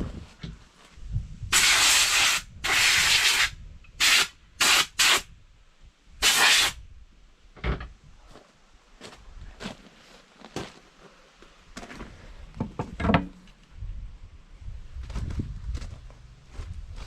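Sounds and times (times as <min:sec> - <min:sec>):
spray hissing bursts: 0:01.5 - 0:05.3, 0:06.2 - 0:06.8.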